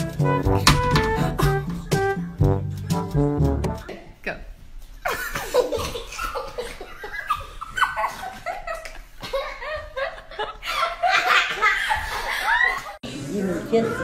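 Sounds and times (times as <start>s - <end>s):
high-pitched laughter: 5.0s - 13.0s.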